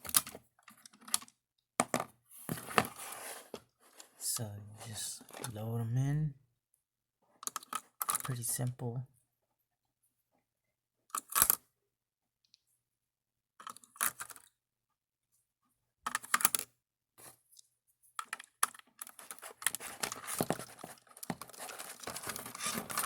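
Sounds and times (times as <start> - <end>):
batteries clicking and scraping: 18.2 - 23.0
batteries rattling: 19.0 - 23.0.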